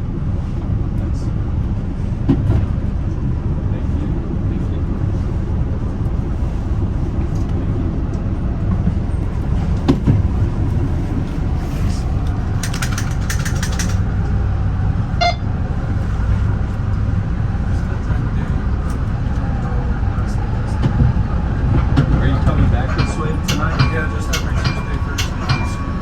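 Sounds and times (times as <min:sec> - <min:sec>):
train rumbling on rails: 0:00.0 - 0:26.0
sharp clicks: 0:12.6 - 0:14.0
brief high tone: 0:15.2 - 0:15.5.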